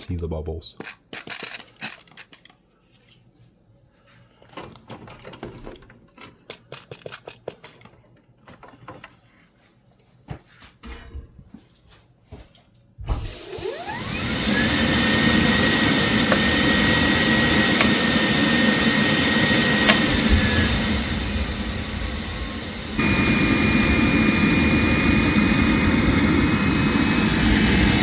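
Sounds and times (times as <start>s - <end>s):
heater combustion fan rushing: 13.1s - 28.0s.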